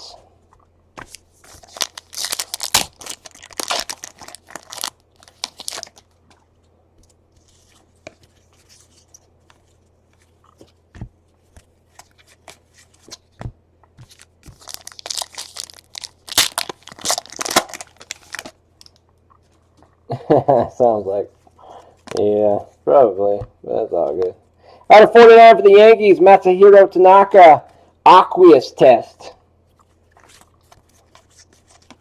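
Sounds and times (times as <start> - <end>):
card wrappers tearing and crinkling: 1.0 - 6.2, 14.0 - 18.9.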